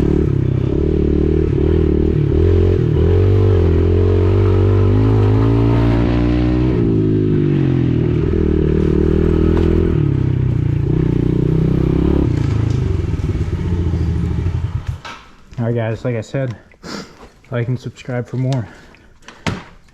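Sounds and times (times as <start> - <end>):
pit bike engine revving: 0.0 - 15.1.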